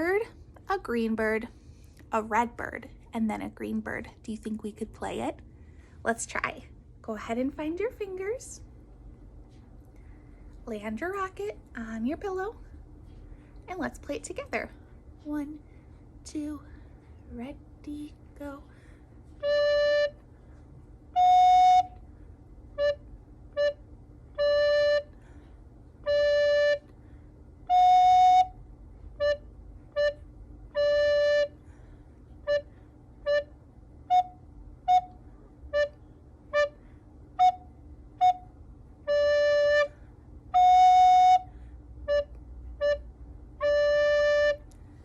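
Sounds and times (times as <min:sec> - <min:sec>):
recorder playing two notes: 0:19.4 - 0:20.2, 0:21.2 - 0:22.0, 0:24.4 - 0:25.2, 0:27.7 - 0:28.6, 0:34.1 - 0:36.8, 0:40.6 - 0:41.5, 0:42.1 - 0:44.6.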